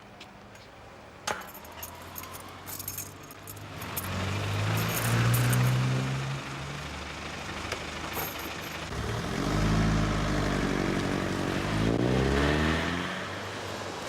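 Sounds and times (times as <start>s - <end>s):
vehicle engine running: 3.5s - 11.5s.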